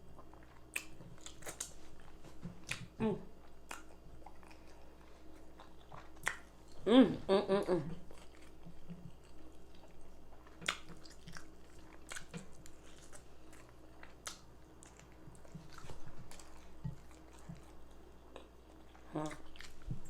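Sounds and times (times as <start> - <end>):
person chewing with wet smacking: 0.0 - 6.9, 8.0 - 20.0.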